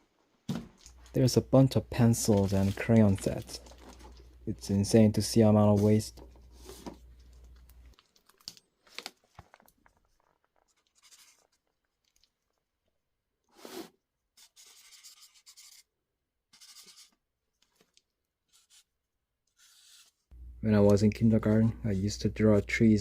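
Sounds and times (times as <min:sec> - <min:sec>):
pen scratching on paper: 0:14.4 - 0:15.8, 0:16.6 - 0:17.1.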